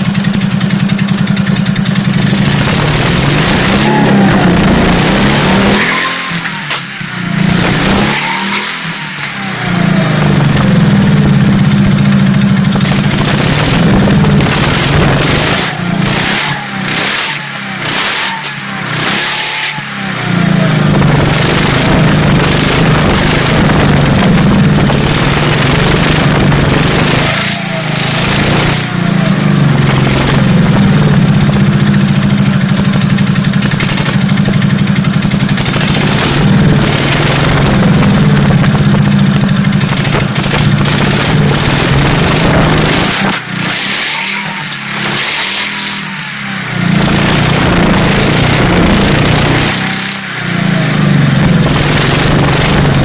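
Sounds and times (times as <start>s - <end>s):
motorcycle engine running loudly: 0.0s - 53.0s.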